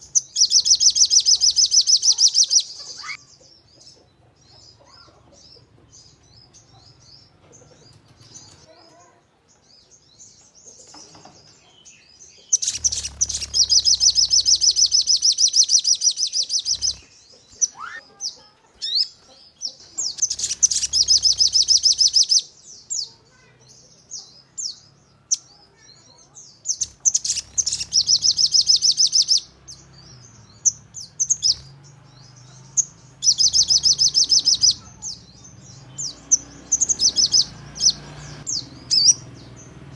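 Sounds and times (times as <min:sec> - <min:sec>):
high bird chirps: 0:00.0 - 0:09.1, 0:10.8 - 0:39.9
songbird fast high trills: 0:12.6 - 0:17.0, 0:17.6 - 0:18.1, 0:20.2 - 0:22.4, 0:26.8 - 0:29.8.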